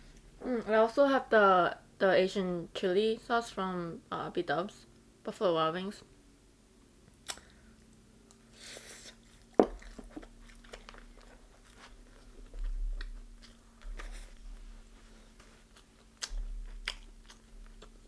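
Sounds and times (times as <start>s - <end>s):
wet mouth clicks: 7.2s - 7.5s
crunchy chewing: 7.2s - 14.6s, 15.3s - 18.0s.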